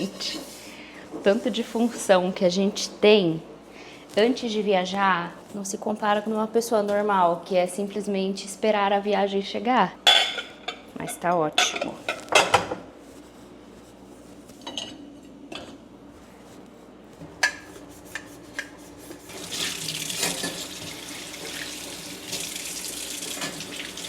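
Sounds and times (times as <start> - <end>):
running water hiss: 19.3 - 24.0.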